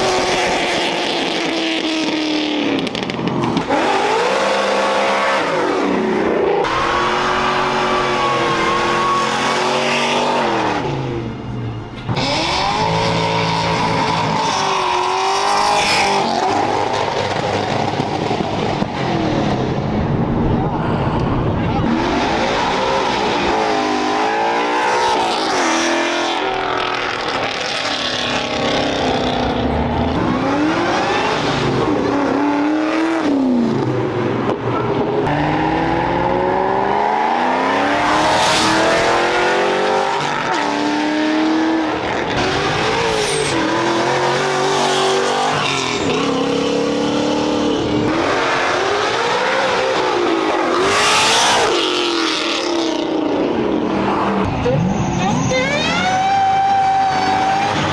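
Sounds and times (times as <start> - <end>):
car engine revving hard: 35.2 - 54.3.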